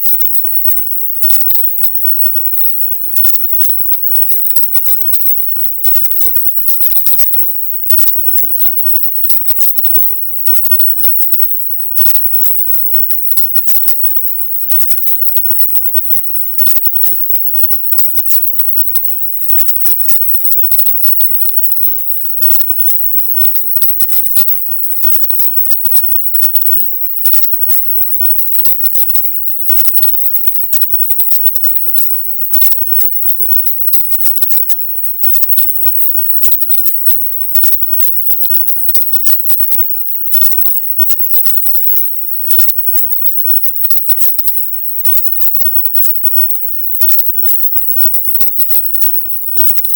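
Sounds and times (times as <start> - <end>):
choppy electronic hiss: 0.0 - 49.9.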